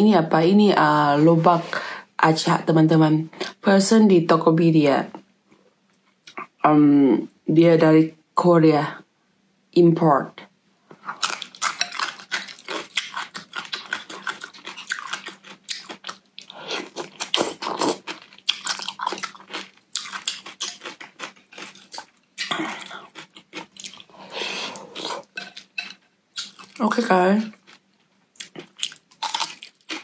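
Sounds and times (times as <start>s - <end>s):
crunchy chewing of pickled radish: 11.0s - 30.0s.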